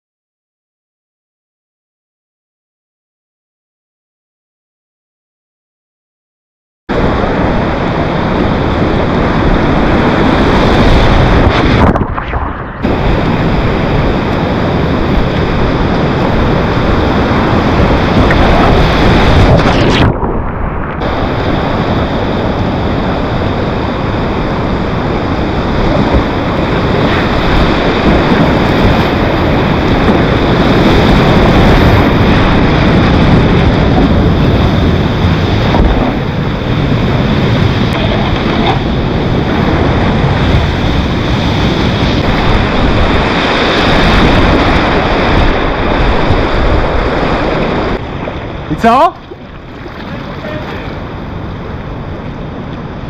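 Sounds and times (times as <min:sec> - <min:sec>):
wind buffeting microphone: 0:06.9 - 0:53.0
whitewater rapids rushing: 0:34.2 - 0:52.2.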